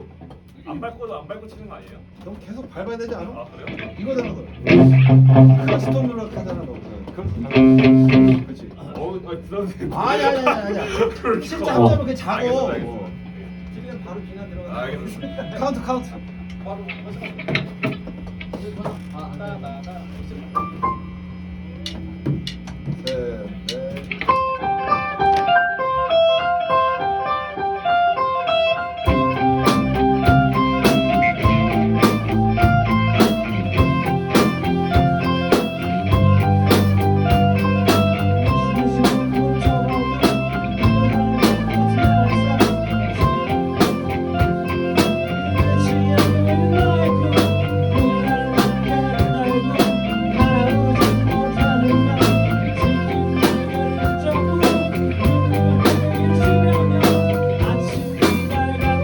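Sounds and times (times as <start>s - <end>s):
bass line: 4.6s - 6.5s, 7.3s - 8.5s, 11.7s - 12.2s, 29.1s - 59.0s
electric guitar melody: 4.6s - 6.6s, 7.3s - 8.5s, 11.7s - 12.1s, 24.1s - 59.0s
drum beat: 4.7s - 6.0s, 7.4s - 8.4s, 29.1s - 59.0s.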